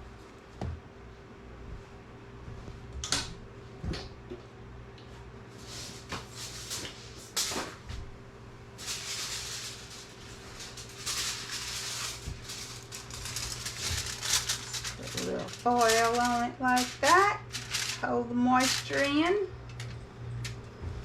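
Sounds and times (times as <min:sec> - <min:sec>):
steady low hum: 0:00.0 - 0:21.0
aluminium foil crinkling: 0:08.8 - 0:20.6.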